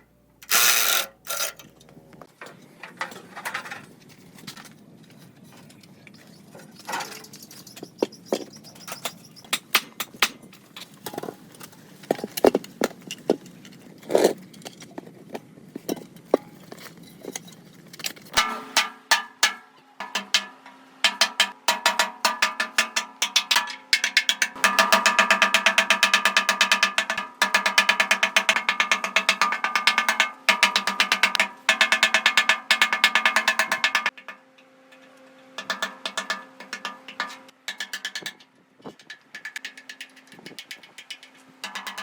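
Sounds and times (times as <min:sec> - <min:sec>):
power tool hammering metal: 0:00.4 - 0:01.6, 0:18.3 - 0:34.5, 0:35.6 - 0:38.4.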